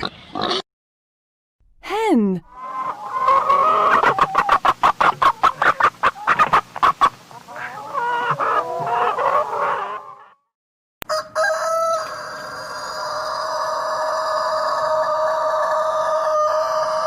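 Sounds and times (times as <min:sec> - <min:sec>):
hen clucking and cackling: 0:02.5 - 0:10.4, 0:11.0 - 0:17.0.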